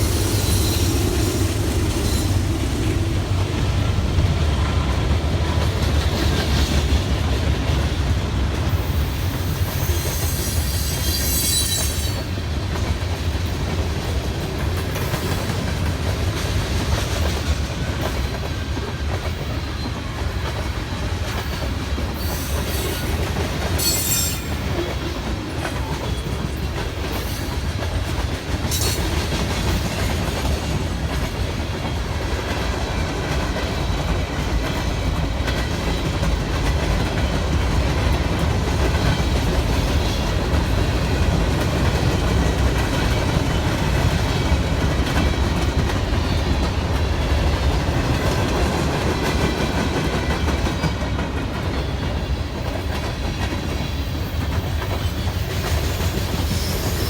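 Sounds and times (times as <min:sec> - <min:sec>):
train wheels clickety-clack: 0:00.0 - 0:57.0
wheel squeals: 0:09.2 - 0:12.3, 0:23.8 - 0:24.7.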